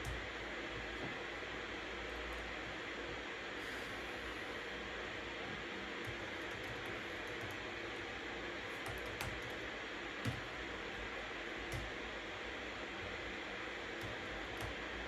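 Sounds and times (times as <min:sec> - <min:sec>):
white-noise hiss: 0:00.0 - 0:15.0
keyboard keystrokes: 0:06.0 - 0:07.6, 0:08.7 - 0:09.6, 0:10.2 - 0:12.0, 0:14.0 - 0:14.8.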